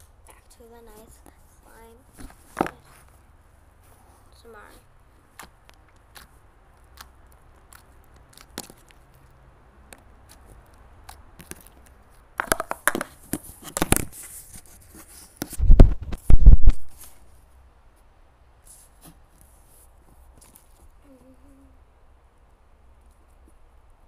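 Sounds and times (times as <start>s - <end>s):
slime crackling and tearing: 5.3s - 9.4s
slime squished by hand: 5.3s - 12.2s.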